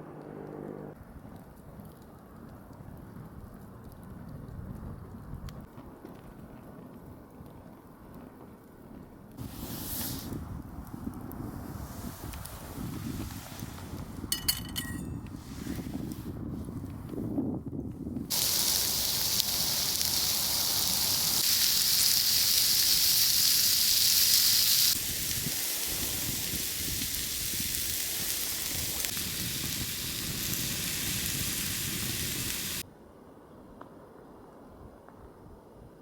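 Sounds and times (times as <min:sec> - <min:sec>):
food sizzling in a pan: 0:18.3 - 0:32.8.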